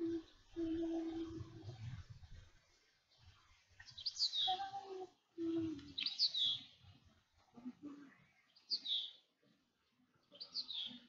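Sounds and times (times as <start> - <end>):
songbird singing high falling notes: 3.8 - 6.7.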